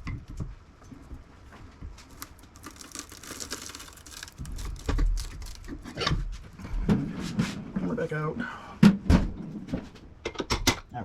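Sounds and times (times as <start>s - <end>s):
hard objects rattling and clicking: 2.1s - 6.0s.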